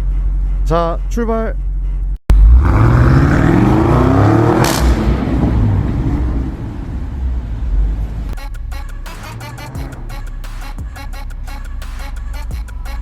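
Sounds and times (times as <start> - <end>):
car engine accelerating hard: 2.3 - 8.4, 9.0 - 12.5
sharp exhaust crack: 2.3 - 13.0.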